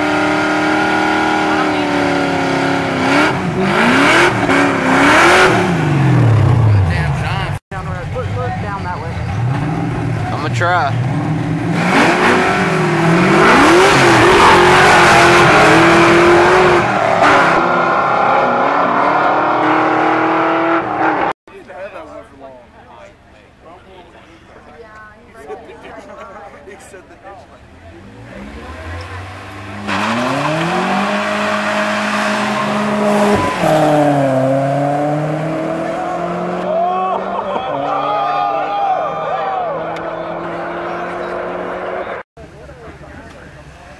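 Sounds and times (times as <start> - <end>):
car engine revving: 0.0 - 21.4, 27.5 - 36.8, 39.6 - 42.2.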